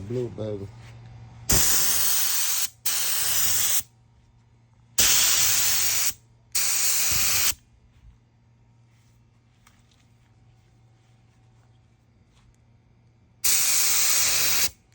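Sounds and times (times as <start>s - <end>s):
paint spray gun spraying: 1.5s - 3.8s, 5.0s - 7.6s, 13.4s - 14.8s.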